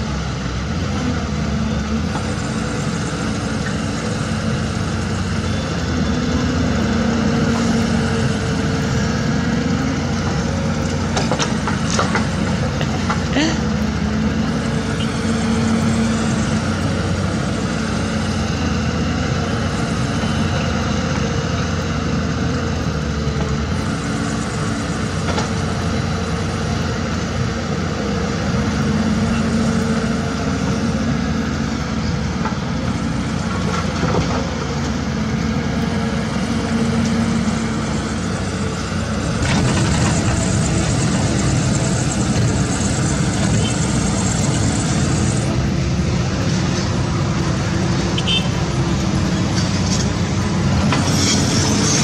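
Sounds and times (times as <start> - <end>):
heavy diesel machinery running: 0.0 - 52.0.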